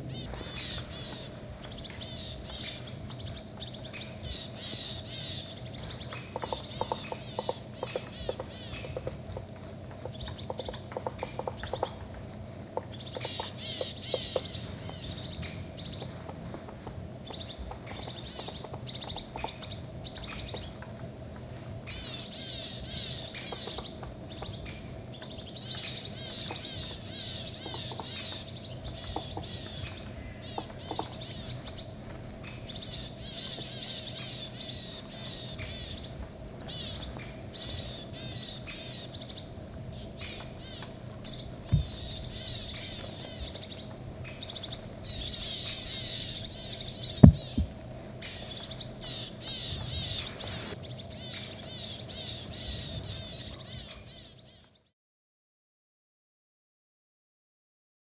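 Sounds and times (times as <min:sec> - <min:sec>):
birds twittering: 0:00.0 - 0:54.9
low thumps: 0:47.2 - 0:47.9.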